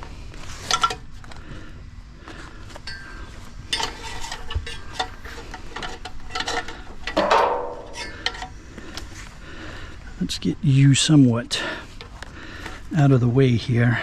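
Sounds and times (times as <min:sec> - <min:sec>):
hand tools clicking on metal: 0:03.7 - 0:08.6
ringing metallic scrape: 0:07.1 - 0:08.5.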